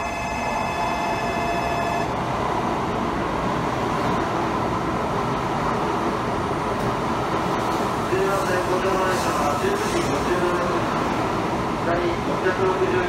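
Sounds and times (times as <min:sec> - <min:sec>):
held multi-pitch tone: 0:00.0 - 0:02.2
train wheels and air rushing: 0:00.0 - 0:13.0.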